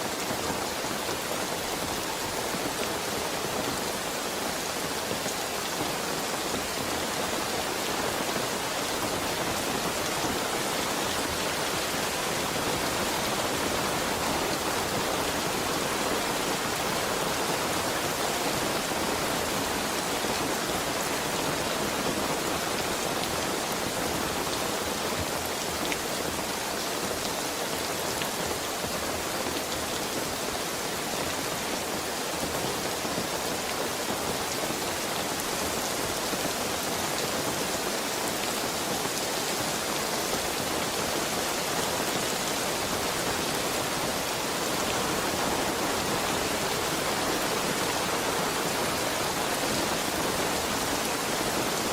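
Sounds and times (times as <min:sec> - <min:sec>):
heavy rain falling: 0:00.0 - 0:51.9
raindrops pattering on surfaces: 0:00.0 - 0:51.9.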